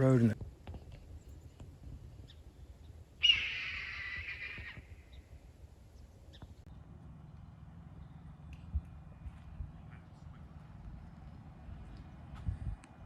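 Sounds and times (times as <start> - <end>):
harsh bird call: 3.2 - 4.9.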